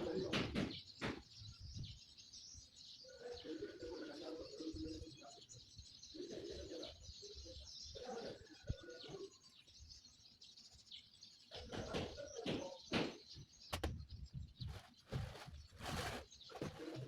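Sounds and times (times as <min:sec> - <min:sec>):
birds chirping: 0:00.0 - 0:17.0
short knocks: 0:12.0 - 0:14.0.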